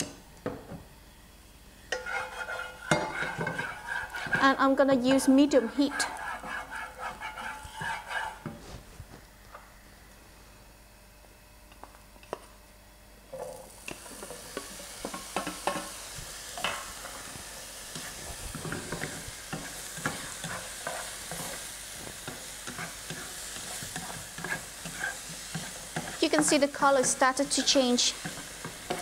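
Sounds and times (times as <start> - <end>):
pineapple sizzling in oil: 13.4 - 29.0.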